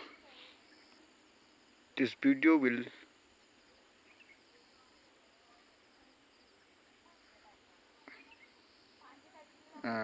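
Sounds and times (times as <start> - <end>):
insect chirping: 0.0 - 10.0.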